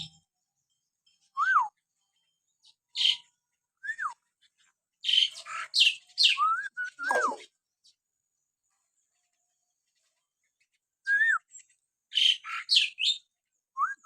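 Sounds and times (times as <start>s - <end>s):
myna bird whistles and harsh calls: 2.9s - 4.3s, 5.0s - 7.6s, 11.0s - 14.0s.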